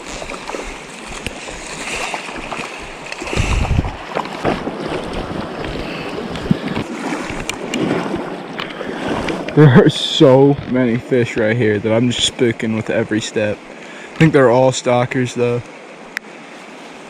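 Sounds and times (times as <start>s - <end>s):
wind buffeting microphone: 0.0s - 9.6s
creek water rushing: 0.0s - 17.0s.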